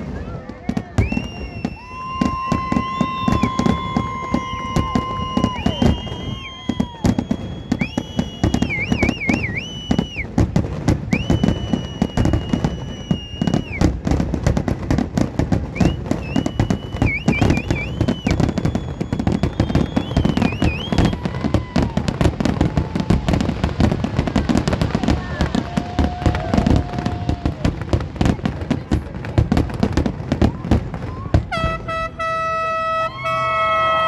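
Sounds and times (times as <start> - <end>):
fireworks bangs and crackles: 0.0 - 34.0
high whistling tone: 1.0 - 10.3, 11.1 - 13.9, 15.8 - 21.3, 31.2 - 34.0.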